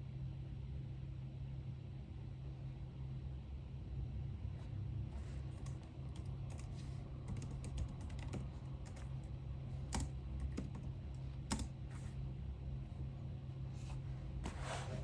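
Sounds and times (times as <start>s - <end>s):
keyboard typing clicks: 5.6s - 9.2s, 9.9s - 11.8s.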